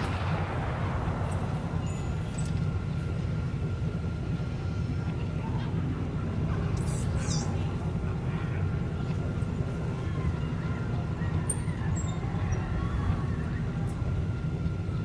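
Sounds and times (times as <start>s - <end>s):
faint murmured voices: 4.0s - 15.0s.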